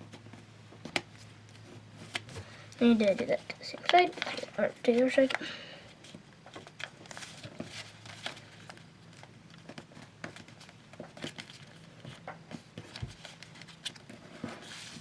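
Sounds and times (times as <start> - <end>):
paper crinkling and rustling: 6.0 - 15.0.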